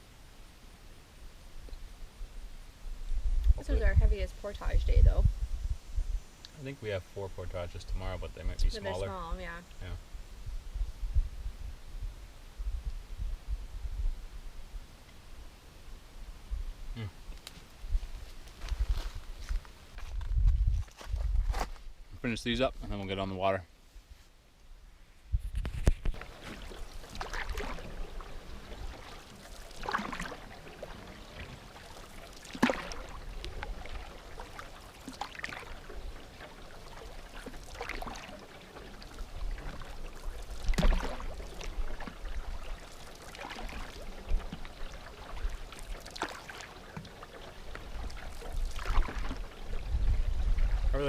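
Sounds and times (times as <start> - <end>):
wind rumbling on microphone: 1.2 - 23.1, 24.0 - 29.3, 43.6 - 46.0, 47.5 - 51.0
paddle strokes through water: 25.6 - 51.0.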